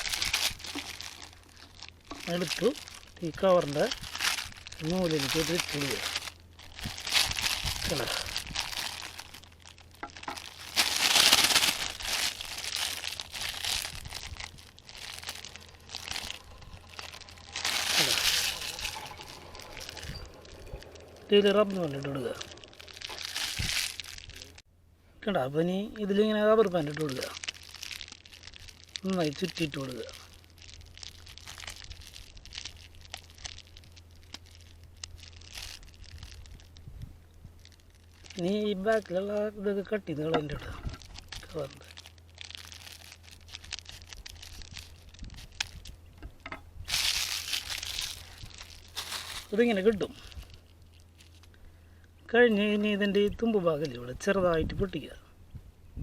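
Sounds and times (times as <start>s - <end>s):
plastic bag crinkling: 0.0s - 24.6s, 26.0s - 55.2s.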